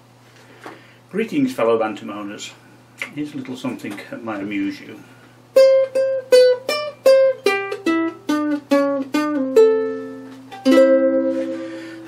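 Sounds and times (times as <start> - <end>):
plucked string instrument melody: 5.5 - 12.0.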